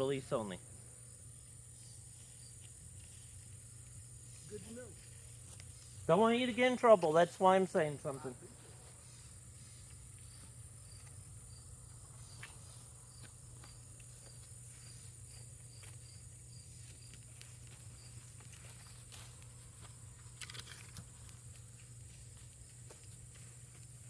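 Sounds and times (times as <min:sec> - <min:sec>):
cricket-like chirp: 0:00.0 - 0:24.0
insects droning: 0:00.0 - 0:24.0
small clicks and rustles: 0:16.8 - 0:24.0.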